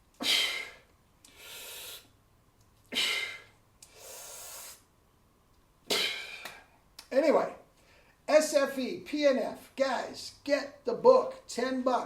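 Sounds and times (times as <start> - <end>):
man breathing forcefully: 0.2 - 2.2, 2.9 - 4.9, 5.9 - 6.8.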